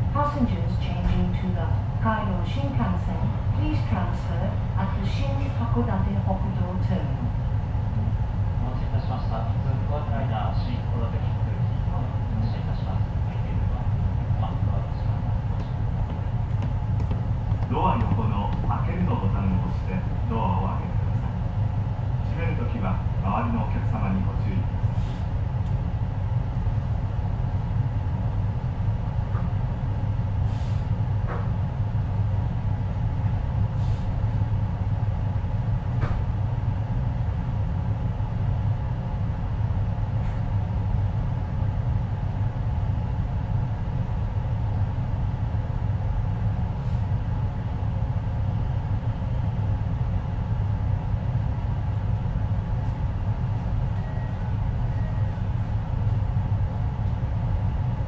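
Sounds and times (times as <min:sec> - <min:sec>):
low hum inside train car: 0:00.0 - 0:58.0.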